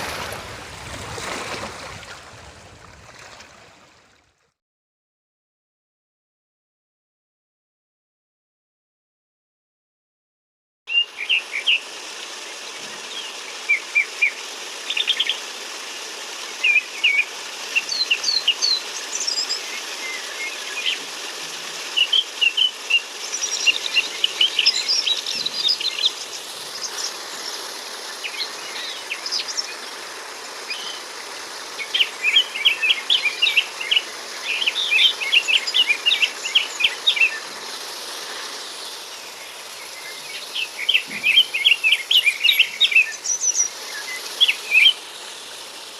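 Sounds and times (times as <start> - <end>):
steady background hiss: 10.9 - 45.9
birds chirping and trilling: 16.6 - 21.0, 22.0 - 37.7, 38.6 - 45.0.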